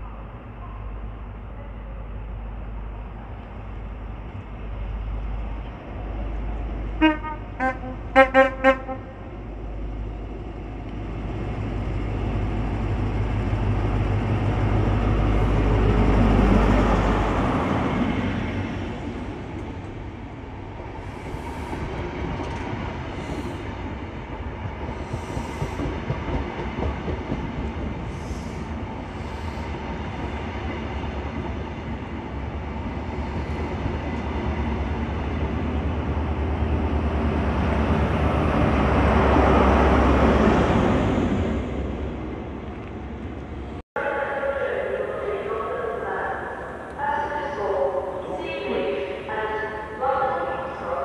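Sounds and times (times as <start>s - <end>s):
diesel train engine passing: 0.0s - 51.0s
train horn toots: 7.0s - 9.2s.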